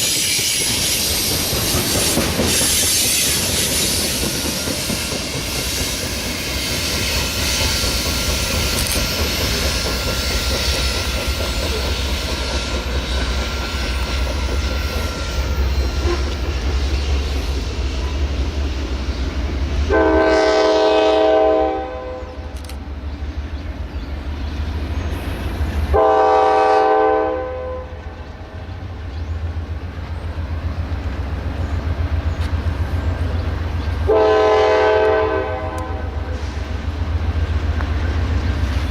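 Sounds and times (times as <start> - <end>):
train rolling past rumble: 0.0 - 38.9
locomotive horn blasts: 14.9 - 16.4, 19.9 - 22.5, 25.9 - 28.1, 34.1 - 36.5.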